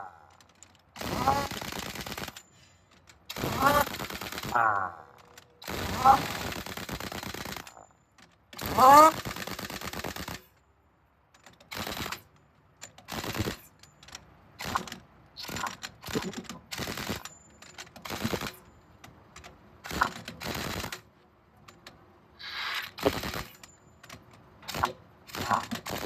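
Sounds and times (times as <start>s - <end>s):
pneumatic impact wrench rattling: 0.5s - 4.6s, 14.6s - 18.6s, 22.4s - 26.0s.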